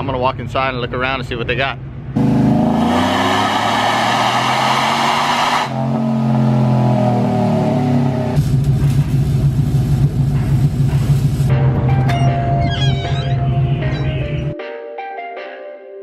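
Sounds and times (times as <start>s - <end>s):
vehicle engine running: 2.1s - 4.8s, 5.6s - 14.5s.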